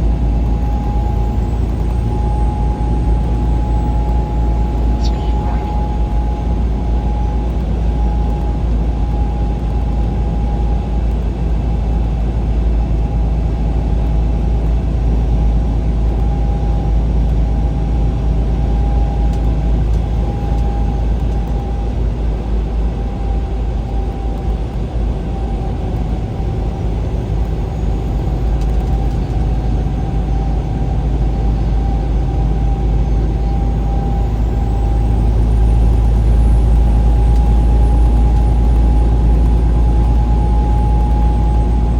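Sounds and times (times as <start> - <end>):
engine and road rumble: 0.0 - 41.9
thin constant whine: 4.2 - 6.4.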